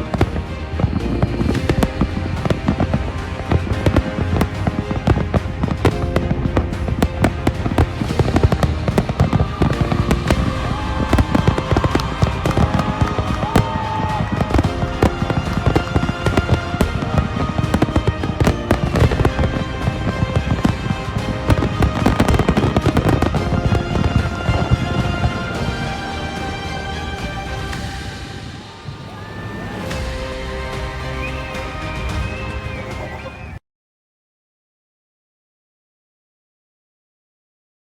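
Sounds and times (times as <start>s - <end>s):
fireworks bursting and crackling: 0.0s - 33.6s
music playing: 0.0s - 33.6s.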